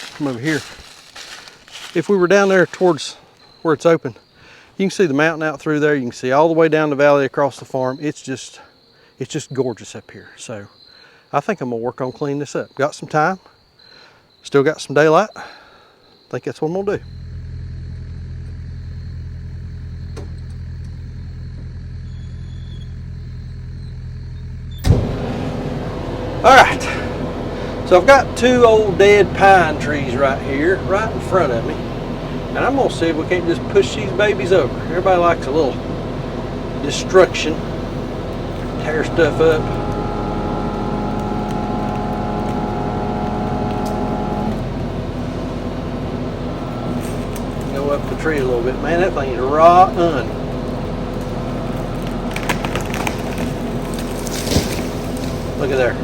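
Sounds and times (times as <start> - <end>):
diesel engine running: 0.0 - 3.0, 16.9 - 56.0.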